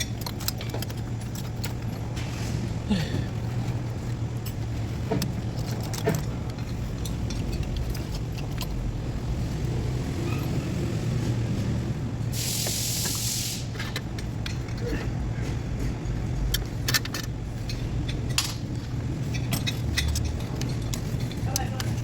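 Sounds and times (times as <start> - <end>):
steady low hum: 0.0 - 22.0
loud hiss: 12.3 - 13.8.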